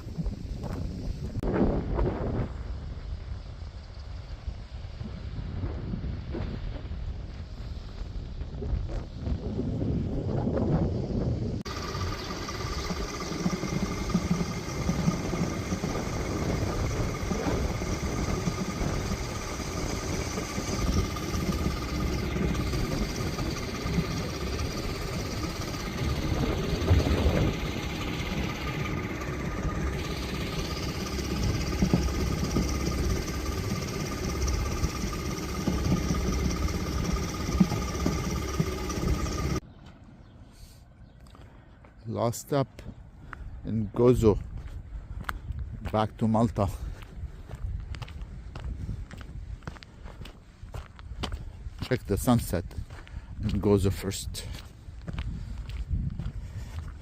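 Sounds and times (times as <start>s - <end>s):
constant whine: 5.6s - 43.1s
motorcycle engine running: 11.6s - 39.6s.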